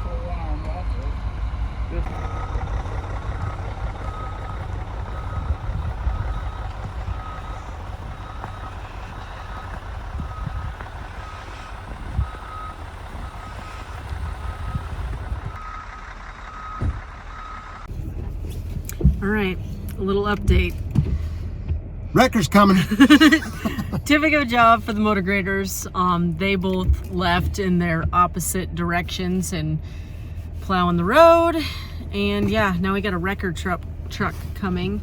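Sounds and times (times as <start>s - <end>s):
diesel engine rumble: 0.0s - 35.0s
reversing alarm beeping: 2.1s - 17.8s.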